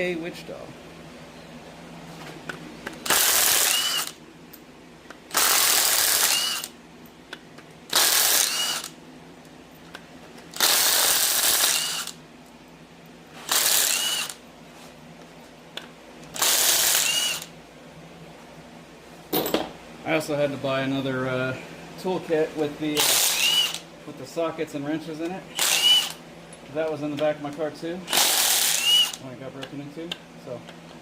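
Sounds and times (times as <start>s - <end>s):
impact wrench bursts: 3.0s - 4.2s, 5.3s - 6.8s, 7.9s - 9.0s, 10.6s - 12.2s, 13.4s - 14.4s, 16.3s - 17.5s, 23.0s - 23.8s, 25.5s - 26.2s, 28.1s - 29.2s.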